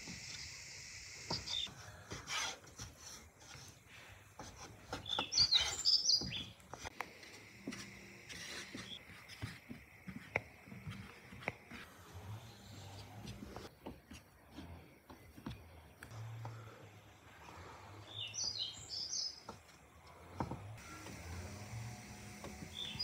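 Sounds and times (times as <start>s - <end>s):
birds chirping: 1.2s - 1.7s, 4.9s - 6.7s, 10.7s - 20.2s, 22.7s - 23.0s.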